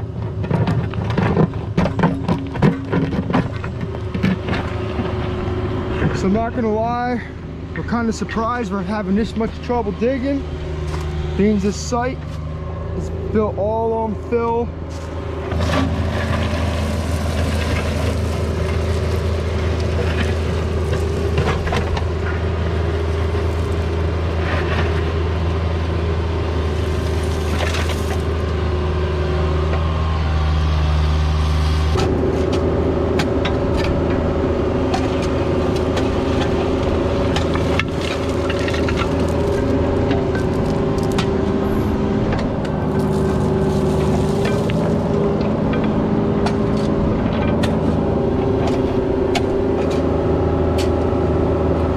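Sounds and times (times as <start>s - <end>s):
excavator diesel engine running: 0.0s - 51.9s
knocks and scrapes: 0.2s - 6.4s, 14.9s - 22.5s, 37.3s - 48.0s.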